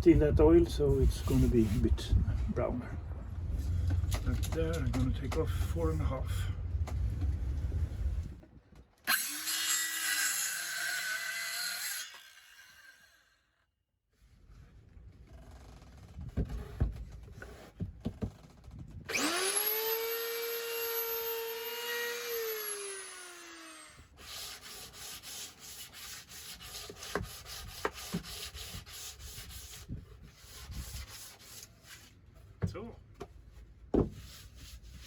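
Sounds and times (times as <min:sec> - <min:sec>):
electric power tool running: 0:09.1 - 0:13.2, 0:19.1 - 0:24.0
rhythmic rubbing on wood: 0:24.2 - 0:31.6.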